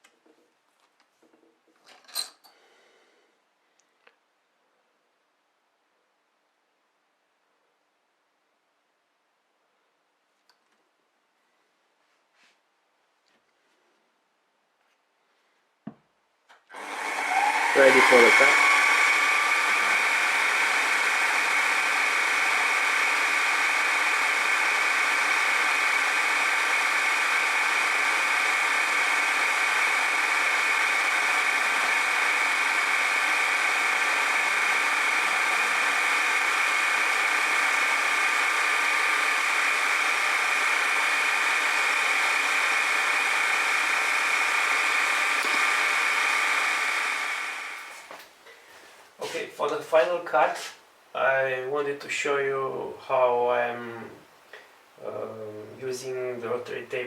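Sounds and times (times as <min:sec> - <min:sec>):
milling machine whining: 0:16.7 - 0:48.1.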